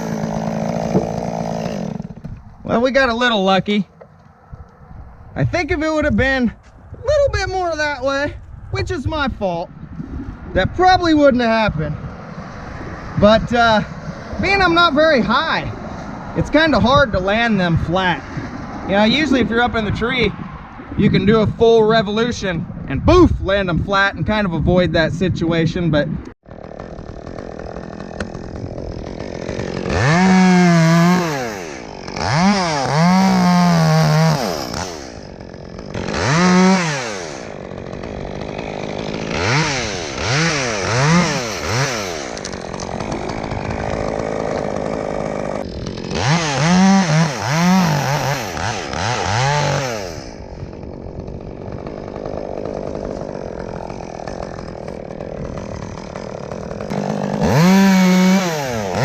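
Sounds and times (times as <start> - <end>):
chainsaw revving: 0.0 - 4.8, 11.4 - 19.9, 26.4 - 59.0
chainsaw idling: 0.0 - 4.9, 26.4 - 59.0.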